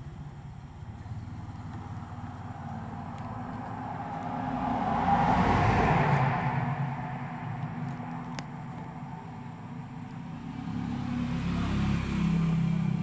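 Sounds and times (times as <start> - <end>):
road vehicle passing by: 0.7 - 13.0.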